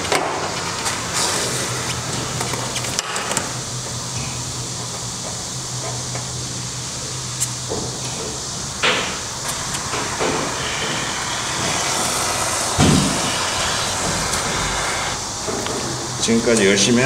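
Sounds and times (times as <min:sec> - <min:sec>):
foam gun hissing: 0:00.0 - 0:02.1, 0:07.3 - 0:16.2.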